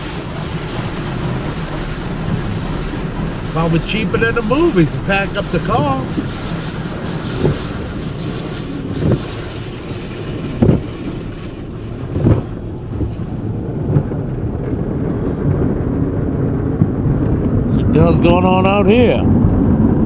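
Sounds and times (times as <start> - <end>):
car wash machinery rumbling: 0.0 - 20.0
dull thumps: 4.1 - 14.3.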